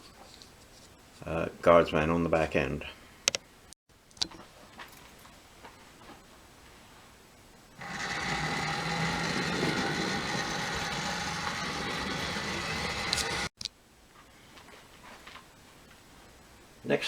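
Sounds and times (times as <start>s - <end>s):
model train motor whining: 7.8s - 13.5s
wheel and track rumble: 7.8s - 13.5s.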